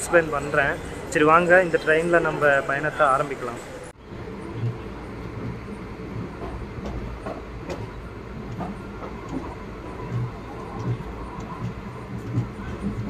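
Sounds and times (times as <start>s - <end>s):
train wheels rumbling on rails: 4.0s - 13.0s
wheel thuds and clacks: 4.4s - 13.0s.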